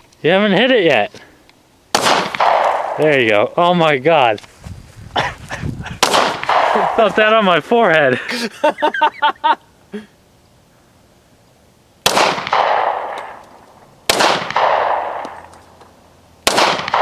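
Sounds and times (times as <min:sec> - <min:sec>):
gunshots with rolling echo: 0:01.9 - 0:03.4, 0:06.0 - 0:07.6, 0:12.0 - 0:13.5, 0:14.1 - 0:15.5, 0:16.4 - 0:17.0.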